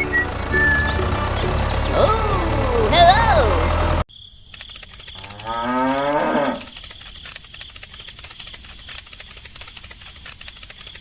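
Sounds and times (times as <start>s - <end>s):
cow mooing: 5.4s - 6.7s.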